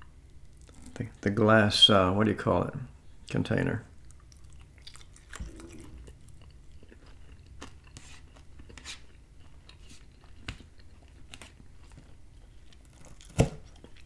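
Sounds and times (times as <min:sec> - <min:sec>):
close chewing: 0:04.0 - 0:14.0.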